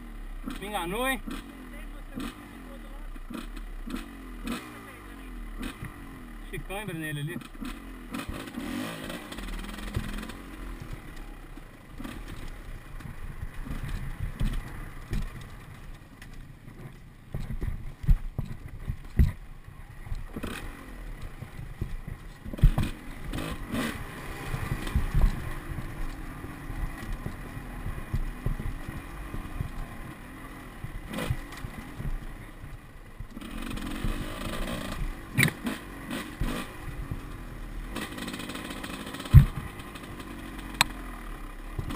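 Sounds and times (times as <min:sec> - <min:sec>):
motorcycle engine revving: 0:00.0 - 0:41.9
clatter and sharp knocks: 0:12.0 - 0:19.4, 0:21.8 - 0:23.6, 0:38.0 - 0:40.0.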